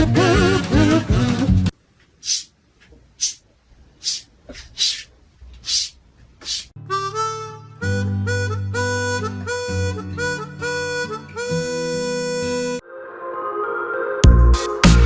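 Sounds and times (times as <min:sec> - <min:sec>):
music with singing: 0:00.0 - 0:01.6, 0:12.5 - 0:15.0
short hissy noises: 0:02.2 - 0:02.6
harmonica music: 0:06.8 - 0:15.0.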